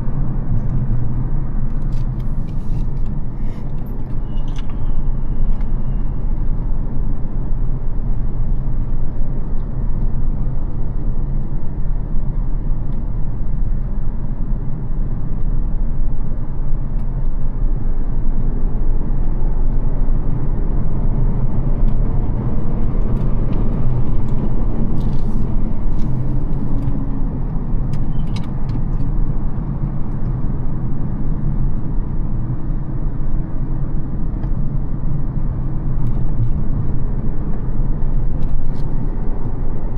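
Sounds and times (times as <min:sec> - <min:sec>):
tyre and road noise: 0:00.0 - 0:39.9
car engine running: 0:18.4 - 0:32.9.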